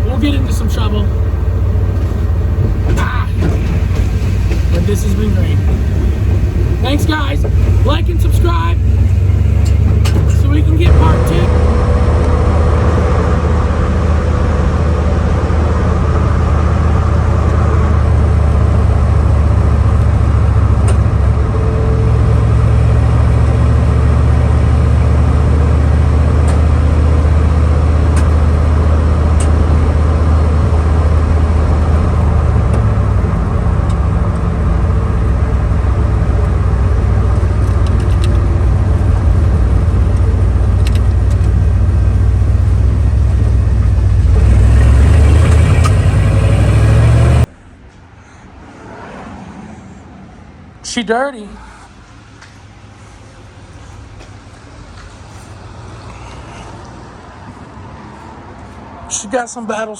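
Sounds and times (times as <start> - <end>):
car engine and road drone: 0.0 - 59.9.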